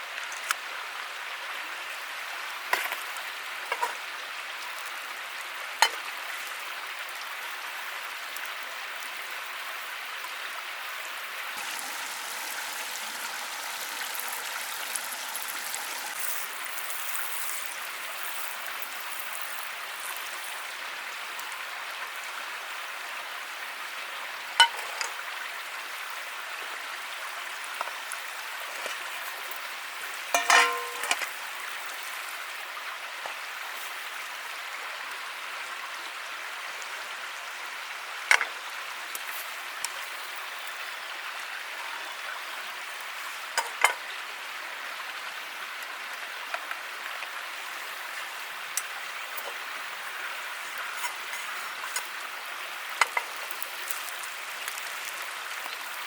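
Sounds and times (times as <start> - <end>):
campfire crackling: 11.4 - 21.4, 52.9 - 55.3
burning wood popping: 11.6 - 19.7.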